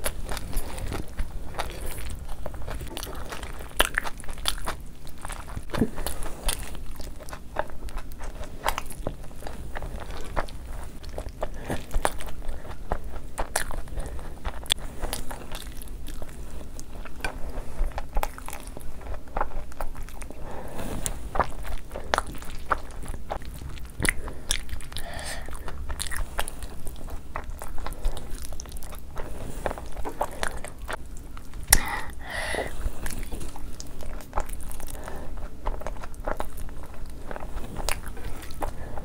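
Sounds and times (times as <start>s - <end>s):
person chewing food: 0.0s - 39.0s.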